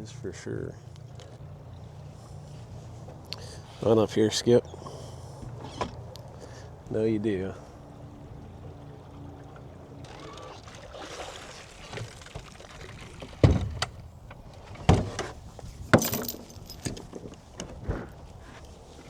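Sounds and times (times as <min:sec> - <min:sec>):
low steady hum: 0:00.0 - 0:19.0
knocks and thumps inside boat: 0:04.6 - 0:06.9, 0:08.0 - 0:19.0.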